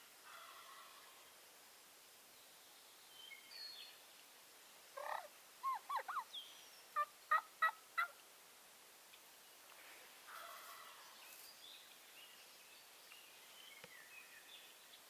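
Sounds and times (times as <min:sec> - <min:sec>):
turkey gobbling: 0:00.3 - 0:01.0, 0:05.0 - 0:06.3, 0:07.0 - 0:08.2, 0:10.3 - 0:11.0.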